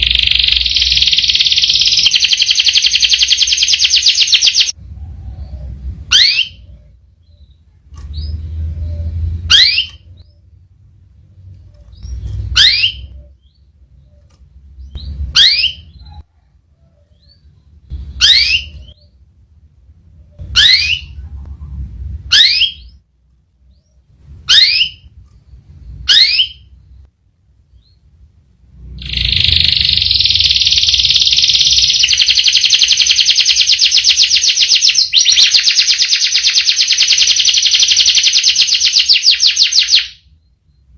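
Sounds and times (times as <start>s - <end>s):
canary calls: 0.0s - 4.8s, 11.9s - 19.2s, 28.9s - 40.2s
canary rolling trill: 0.0s - 4.8s, 28.9s - 40.2s.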